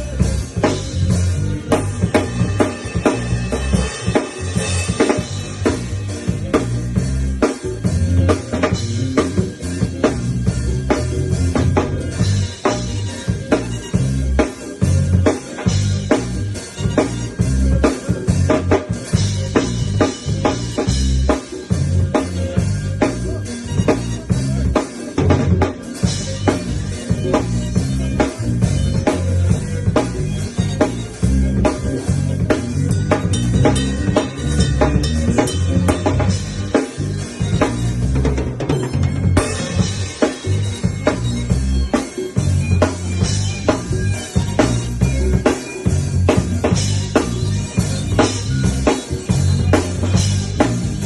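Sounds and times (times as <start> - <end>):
cymbals: 0.0 - 7.9
bass guitar line: 0.0 - 51.0
drum kit groove: 0.0 - 51.0.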